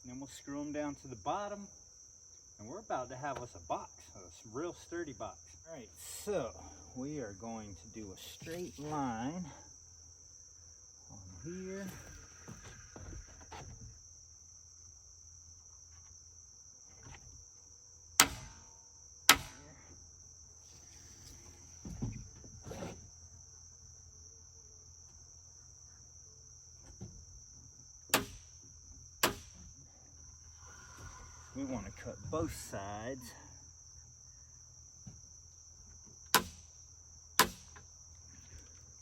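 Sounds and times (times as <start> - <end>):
insects chirring: 0.0 - 39.0
sharp wooden knocks: 18.2 - 18.6, 19.3 - 19.6, 28.1 - 28.5, 29.2 - 29.6, 36.3 - 36.6, 37.4 - 37.8.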